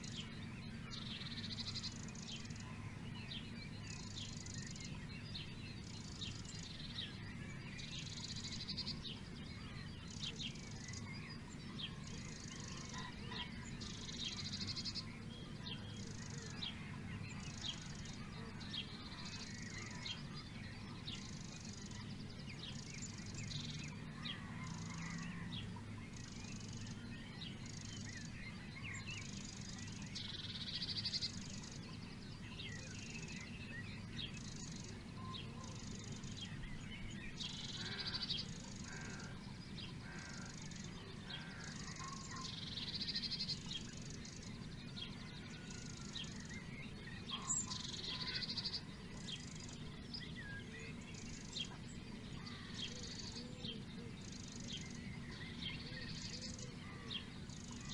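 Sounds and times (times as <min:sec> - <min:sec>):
bird song phrase: 0:00.0 - 0:57.9
faint low hum: 0:00.0 - 0:57.9
scattered bird chirps: 0:37.3 - 0:57.9.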